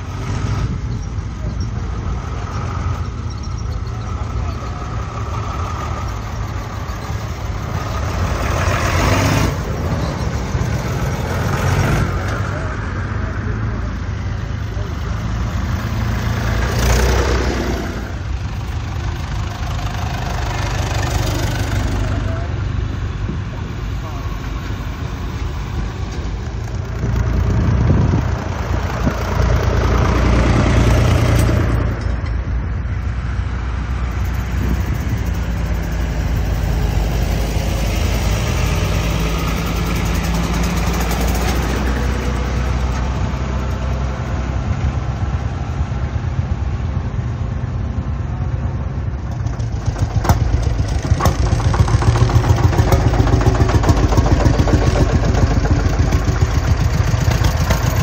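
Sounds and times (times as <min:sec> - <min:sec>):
tractor diesel engines running: 0:00.0 - 0:58.0
tractor pulling away: 0:00.0 - 0:58.0
engine running with rapid beat: 0:49.2 - 0:58.0.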